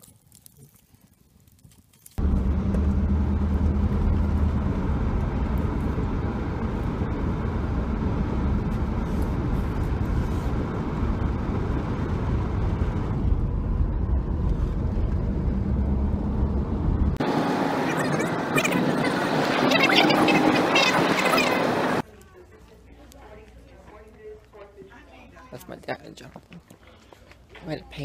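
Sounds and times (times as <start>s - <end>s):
loud steady low rumble: 2.2s - 17.3s.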